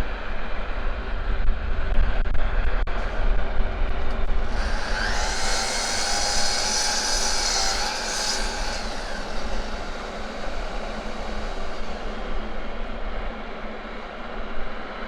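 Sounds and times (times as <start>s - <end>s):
aircraft passing overhead: 4.3s - 15.0s.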